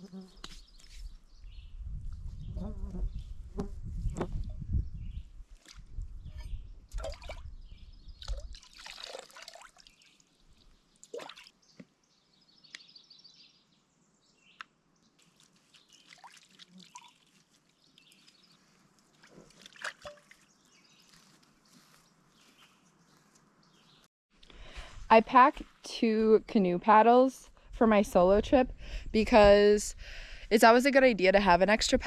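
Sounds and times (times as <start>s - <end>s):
water dripping and trickling: 6.9s - 7.5s, 8.2s - 11.5s, 15.2s - 20.7s.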